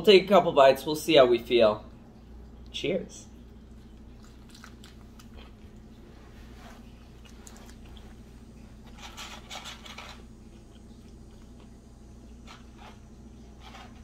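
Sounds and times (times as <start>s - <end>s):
steady low hum: 0.0s - 14.0s
person chewing crunchy food: 3.7s - 13.1s.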